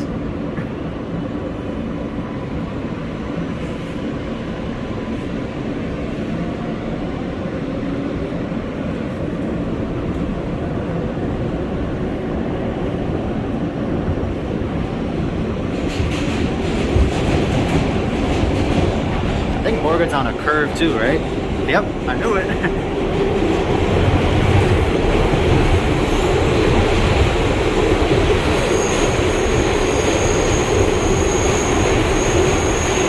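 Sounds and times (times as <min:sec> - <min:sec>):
subway train wheel rumble: 0:00.0 - 0:33.0.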